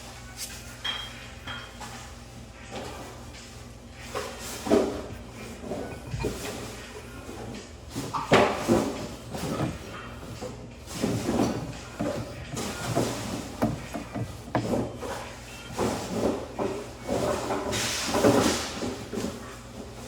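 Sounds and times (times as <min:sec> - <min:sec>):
hands scraping pipe fittings: 0:04.7 - 0:17.3.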